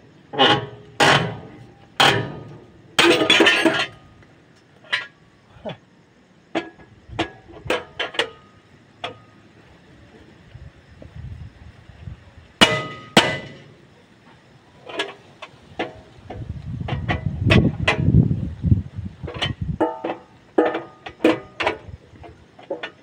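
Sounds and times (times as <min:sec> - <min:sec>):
metal tools clinking: 0:02.0 - 0:04.1.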